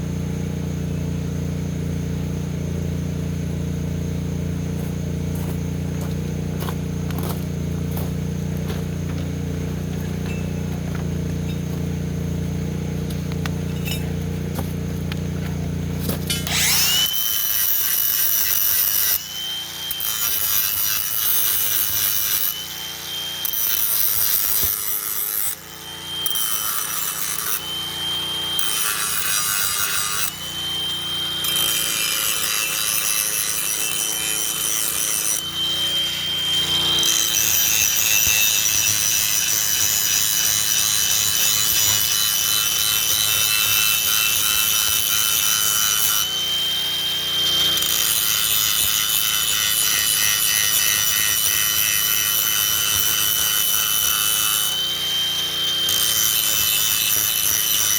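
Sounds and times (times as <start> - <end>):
power tool grinding steel: 0.0 - 57.9.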